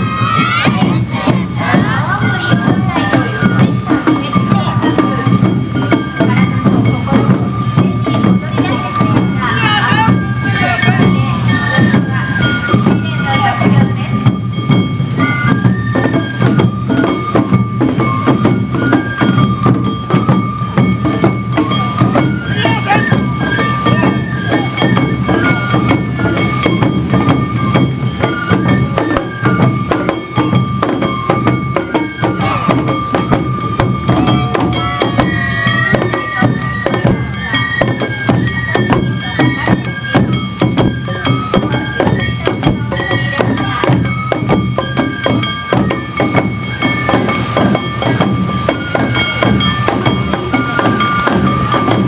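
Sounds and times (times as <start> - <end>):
bamboo flute melody: 0.0 - 52.0
drums: 0.0 - 52.0.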